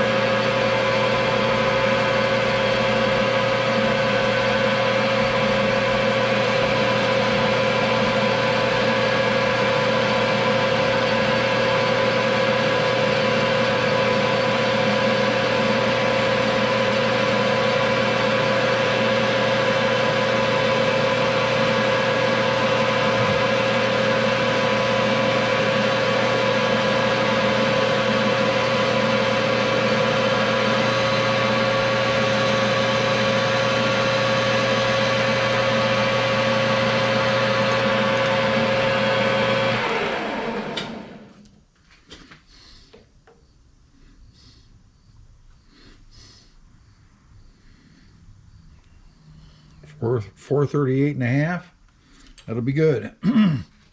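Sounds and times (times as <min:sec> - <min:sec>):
metal lathe whining hum: 0:00.0 - 0:41.5.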